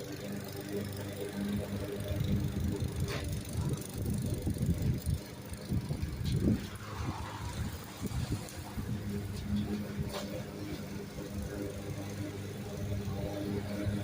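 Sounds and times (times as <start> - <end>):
lawn mower engine: 0.0 - 14.0.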